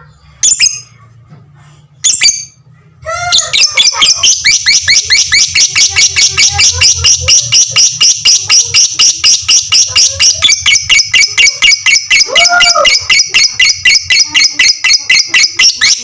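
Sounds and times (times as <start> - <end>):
lovebird chattering: 3.2 - 16.0.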